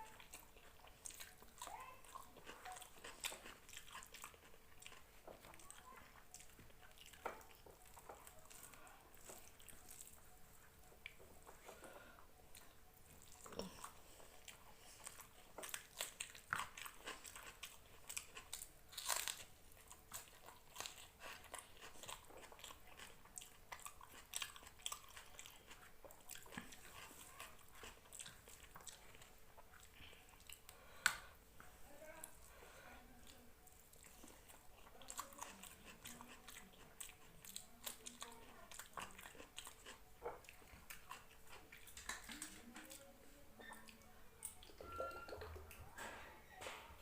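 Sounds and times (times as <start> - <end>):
person chewing food: 0.0 - 47.0
wet mouth clicks and smacks: 41.7 - 42.6.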